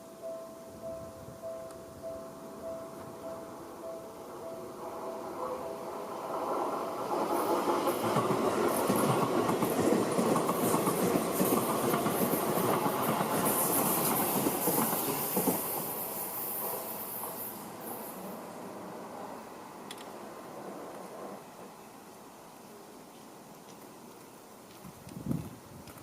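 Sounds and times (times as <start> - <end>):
train wheels clattering over rails: 5.8 - 18.0.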